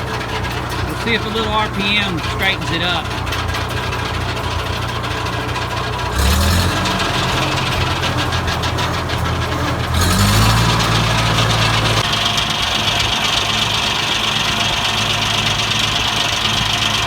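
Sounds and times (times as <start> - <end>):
tractor engine revving: 0.0 - 17.0
circular saw blade spinning: 6.2 - 12.0.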